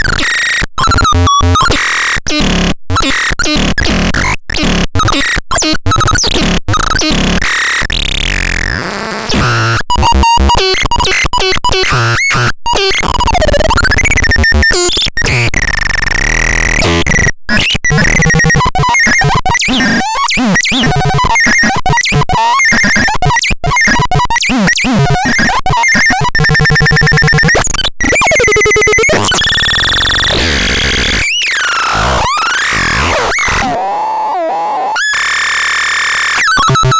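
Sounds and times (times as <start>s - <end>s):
electronic noise device squealing: 26.1s - 36.9s.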